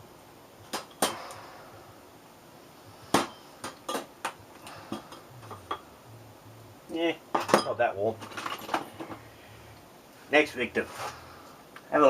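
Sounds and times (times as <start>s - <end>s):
hard objects clicking and knocking: 7.3s - 9.2s.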